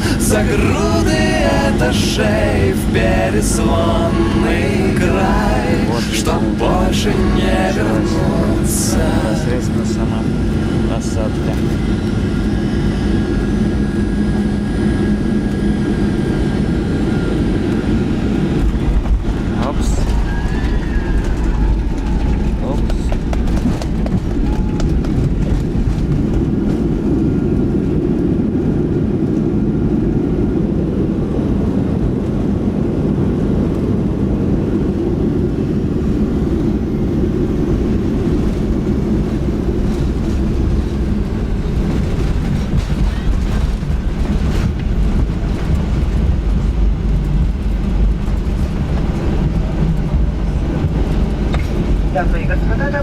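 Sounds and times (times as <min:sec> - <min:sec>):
engines and wheels rumbling: 0:00.0 - 0:53.0.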